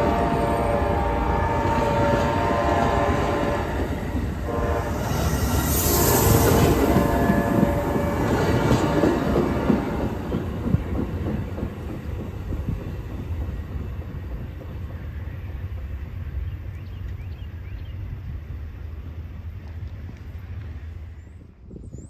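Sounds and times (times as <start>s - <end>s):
train wheels clacking on rails: 1.7s - 17.3s.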